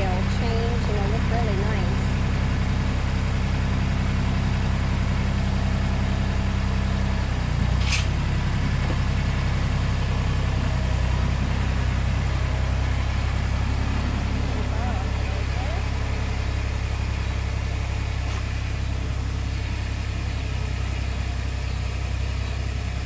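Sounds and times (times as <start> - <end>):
tractor engine running: 0.0 - 23.0
brief hiss: 7.8 - 8.1.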